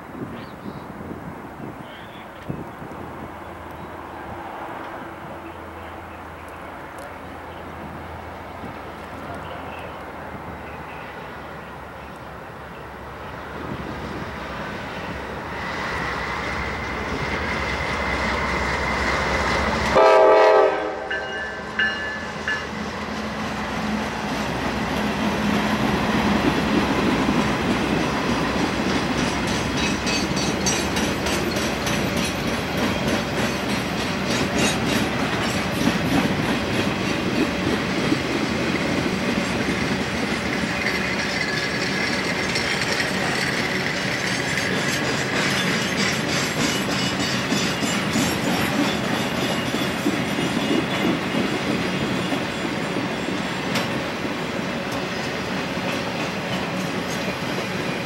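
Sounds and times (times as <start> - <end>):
diesel locomotive rumbling: 0.0 - 58.0
locomotive horn blasts: 19.8 - 21.7
train wheels clicking over rail joints: 21.8 - 58.0.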